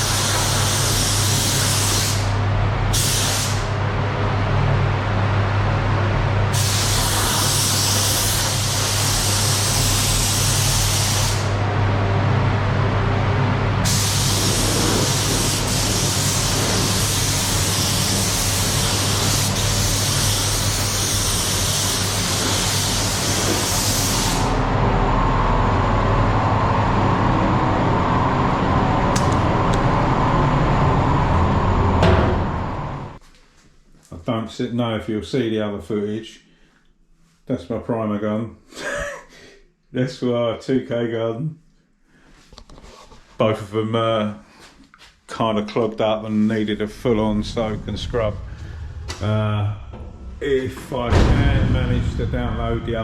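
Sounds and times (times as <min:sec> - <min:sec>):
paint spray gun hissing: 0:00.0 - 0:02.3, 0:03.0 - 0:03.7, 0:06.6 - 0:11.5, 0:13.9 - 0:24.5
steady low hum: 0:00.0 - 0:33.2, 0:45.8 - 0:53.0.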